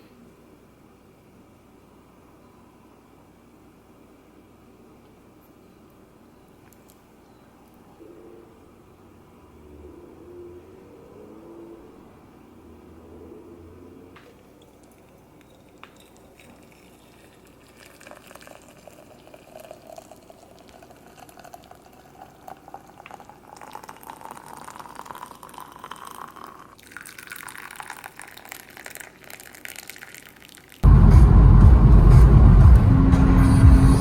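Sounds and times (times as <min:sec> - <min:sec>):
liquid pouring into container: 0:14.6 - 0:30.8.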